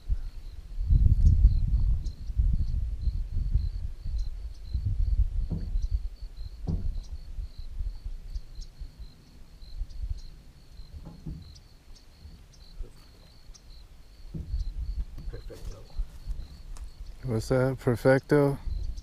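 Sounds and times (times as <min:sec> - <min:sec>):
high-pitched cricket-like chirps: 0:00.0 - 0:19.0
soft knocks: 0:05.4 - 0:05.9, 0:06.6 - 0:07.1, 0:10.9 - 0:11.6, 0:14.3 - 0:15.4.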